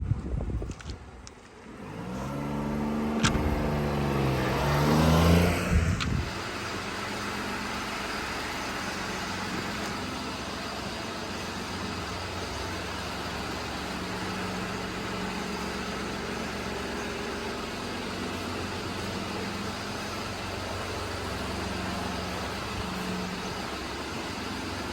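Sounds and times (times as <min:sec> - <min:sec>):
small engine starting and revving: 0:01.5 - 0:24.9.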